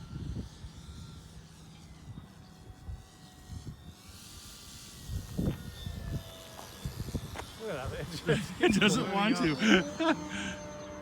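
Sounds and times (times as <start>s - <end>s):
model plane motor whine: 0.0s - 11.0s
wind buffeting microphone: 4.7s - 8.8s.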